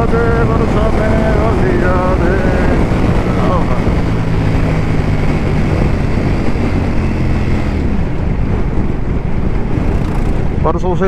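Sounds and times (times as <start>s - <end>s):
motorcycle engine running: 0.0s - 11.0s
wind noise on microphone: 0.0s - 11.0s.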